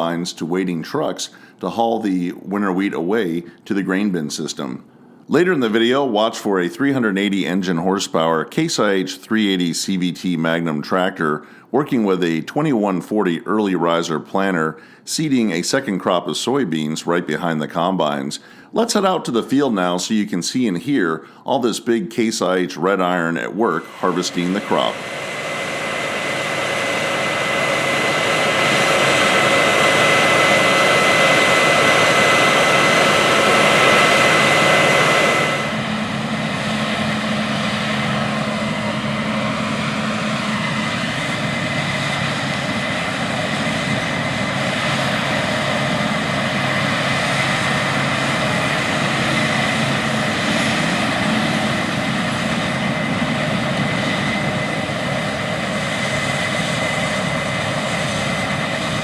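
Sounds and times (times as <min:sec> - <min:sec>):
threshing machinery whine: 0:23.6 - 0:59.0
diesel engines running: 0:23.7 - 0:59.0.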